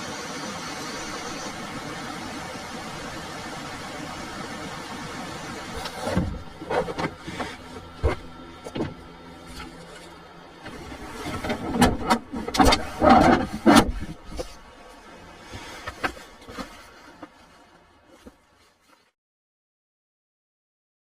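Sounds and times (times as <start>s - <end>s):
low steady hum: 0.0s - 19.1s
knocks and clatters of handling: 5.8s - 19.1s.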